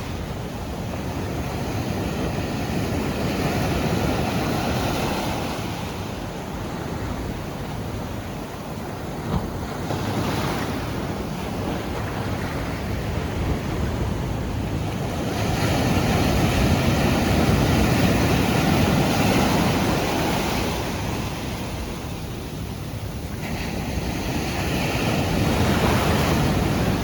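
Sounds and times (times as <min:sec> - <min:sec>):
wind on microphone: 0:00.0 - 0:27.0
surf breaking on beach: 0:09.3 - 0:27.0.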